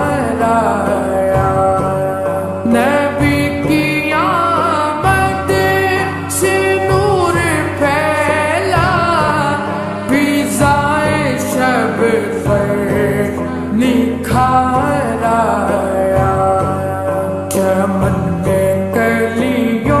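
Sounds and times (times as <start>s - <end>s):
instrumental accompaniment: 0.0s - 20.0s
person singing: 0.0s - 20.0s.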